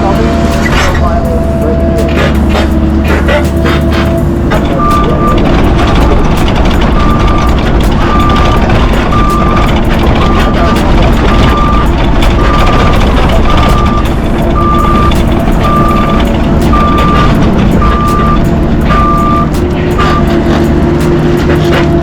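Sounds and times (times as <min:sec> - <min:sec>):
diesel machine rumbling: 0:00.0 - 0:22.0
backup alarm beeping: 0:04.6 - 0:20.3.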